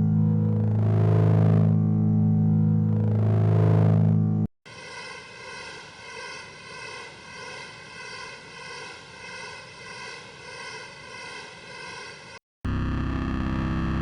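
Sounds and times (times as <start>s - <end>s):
loud low hum: 0.0s - 4.5s, 12.7s - 14.0s
synthetic whirring drone: 0.0s - 14.0s.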